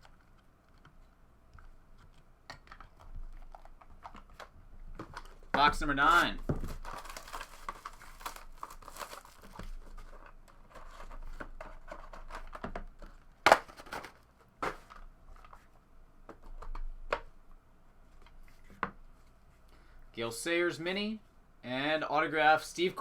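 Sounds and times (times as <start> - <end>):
wrapper tearing and crinkling: 6.0 - 10.2.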